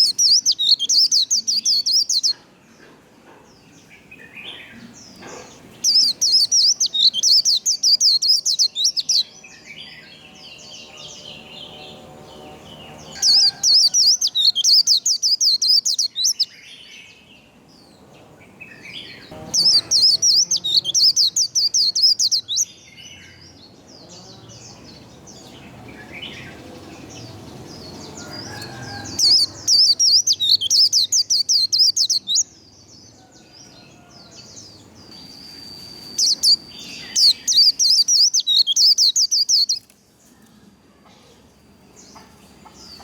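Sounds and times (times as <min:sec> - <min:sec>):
bird singing fast high song: 0:00.0 - 0:02.4, 0:03.8 - 0:33.0, 0:34.4 - 0:39.9
soft bird twitters: 0:35.1 - 0:39.9.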